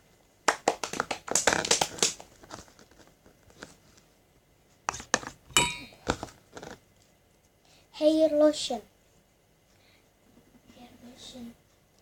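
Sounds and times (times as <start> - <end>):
crinkling and rustling: 0.8 - 4.1, 6.0 - 7.6.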